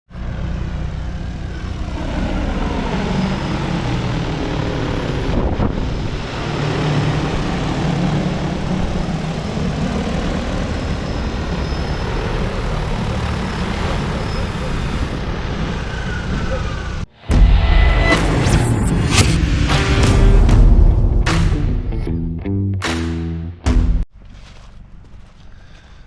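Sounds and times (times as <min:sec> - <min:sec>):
drone rotors droning: 0:00.2 - 0:22.3
low rumble: 0:17.1 - 0:24.3.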